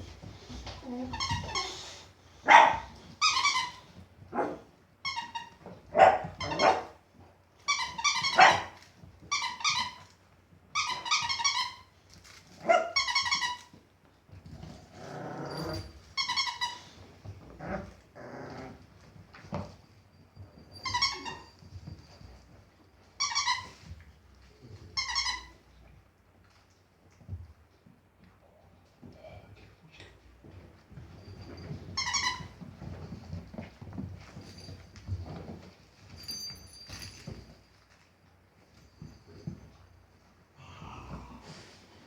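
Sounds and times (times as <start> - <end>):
squeaky toy squeaking: 3.2 - 3.8, 7.7 - 8.7, 10.8 - 11.8, 12.8 - 13.7, 16.2 - 16.9, 23.2 - 23.8, 25.0 - 25.6, 31.9 - 32.6
puppies growling and barking: 14.6 - 16.0, 17.4 - 19.1.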